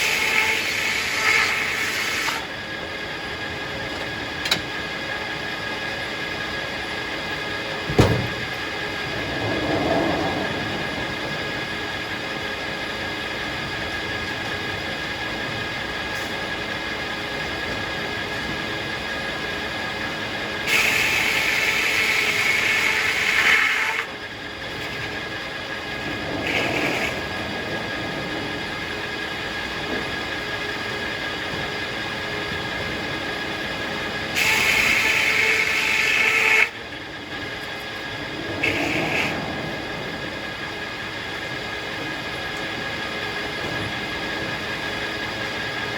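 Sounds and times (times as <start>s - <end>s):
saw blade cutting log: 0.0s - 2.4s, 20.7s - 24.1s, 34.4s - 36.7s
sawmill blade whine: 0.0s - 45.9s
sharp knock: 7.9s - 8.5s.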